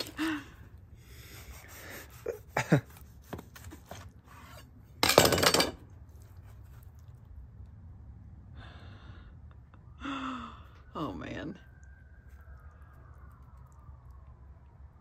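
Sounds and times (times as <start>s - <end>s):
knife cutting on wooden board: 2.7s - 4.7s.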